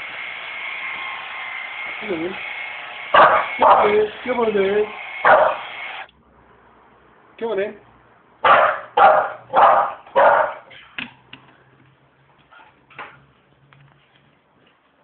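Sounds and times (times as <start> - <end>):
puppy barking: 3.2 - 4.0, 5.2 - 5.6, 8.4 - 10.7.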